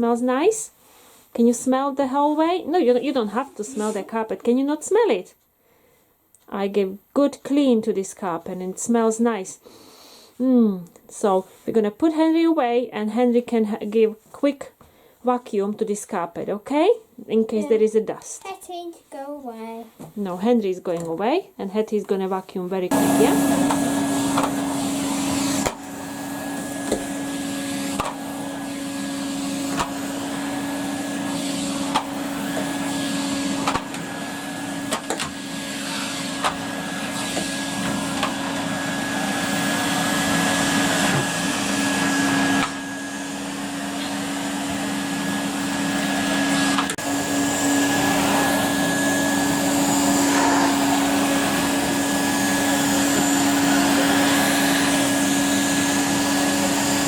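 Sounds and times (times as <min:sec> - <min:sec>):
vacuum cleaner running: 0:22.9 - 0:57.0.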